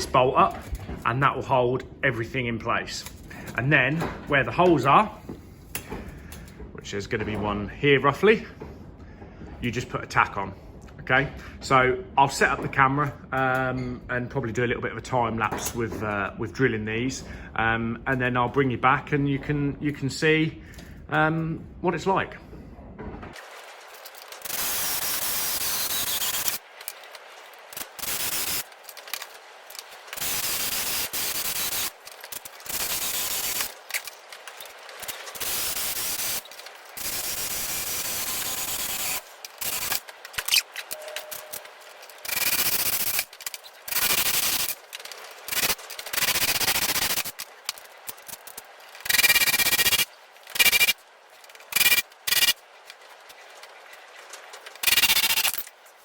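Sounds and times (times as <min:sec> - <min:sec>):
drill boring through steel: 0:24.5 - 0:26.6, 0:28.0 - 0:28.6, 0:30.2 - 0:31.9, 0:32.7 - 0:33.7, 0:35.4 - 0:40.0, 0:50.6 - 0:51.0, 0:51.7 - 0:52.6, 0:54.8 - 0:55.6
drill bit squealing: 0:50.6 - 0:51.0.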